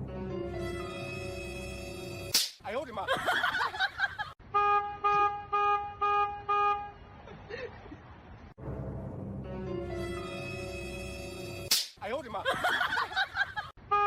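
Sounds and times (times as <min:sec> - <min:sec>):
horn tooting: 0:04.5 - 0:07.2.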